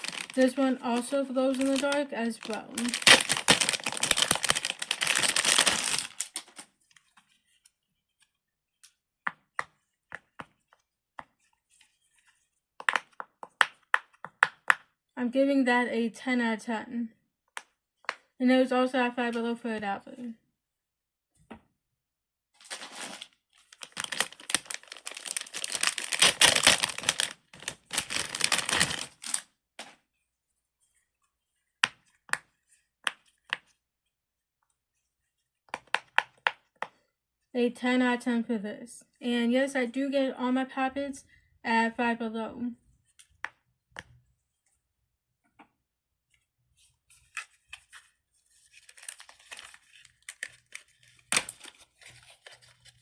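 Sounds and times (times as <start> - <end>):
fidget toys rustling and clicking: 0.0 - 6.6.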